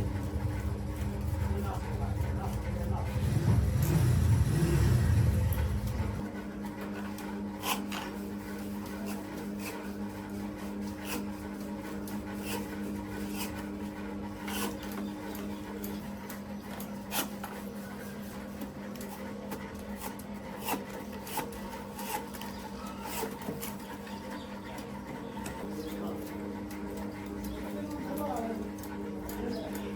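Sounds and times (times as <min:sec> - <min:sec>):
electric hum: 0:00.0 - 0:06.2
low rumble: 0:00.0 - 0:06.2
rubbing and scraping: 0:00.0 - 0:24.4.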